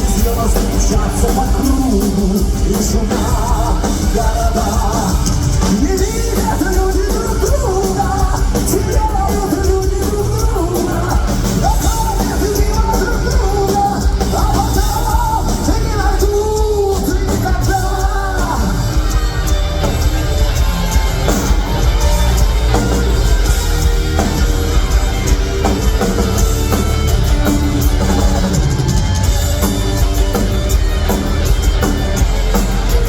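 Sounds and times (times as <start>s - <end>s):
person singing: 0.0s - 20.4s
distorted guitars: 0.0s - 33.0s
drums: 0.0s - 33.0s.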